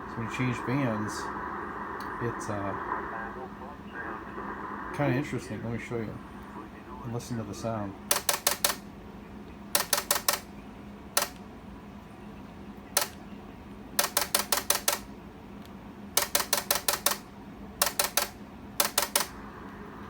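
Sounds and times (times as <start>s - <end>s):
relay clicking: 8.1s - 8.8s, 9.8s - 10.5s, 11.2s - 11.4s, 13.0s - 13.2s, 14.0s - 19.4s.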